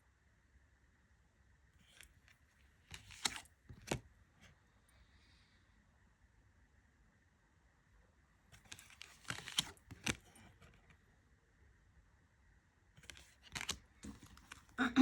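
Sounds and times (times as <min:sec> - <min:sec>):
cards clicking and slapping: 0:02.9 - 0:04.0, 0:08.6 - 0:10.2, 0:13.0 - 0:14.7.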